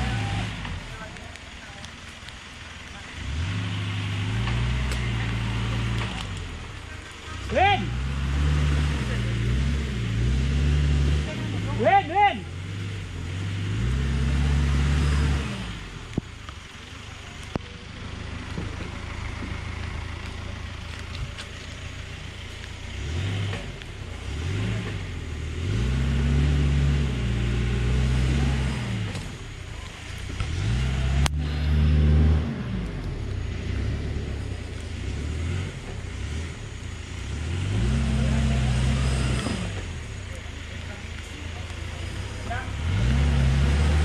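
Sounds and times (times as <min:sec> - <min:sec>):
off-road vehicle engine revving: 0:00.0 - 0:44.0.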